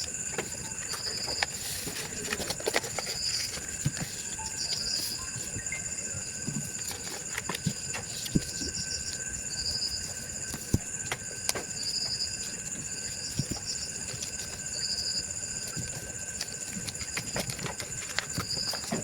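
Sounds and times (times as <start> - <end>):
high-pitched insect chirping: 2.9 - 15.7.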